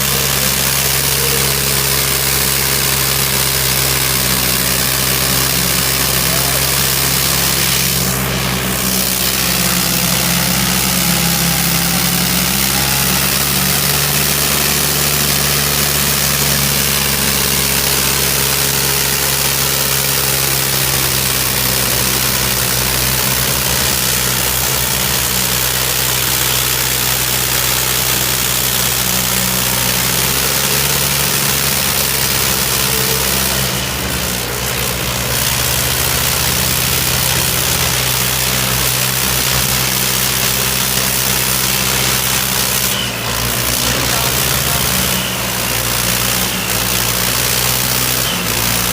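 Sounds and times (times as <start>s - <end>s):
loud hiss: 0.0s - 18.6s
tractor diesel engine running: 0.0s - 48.9s.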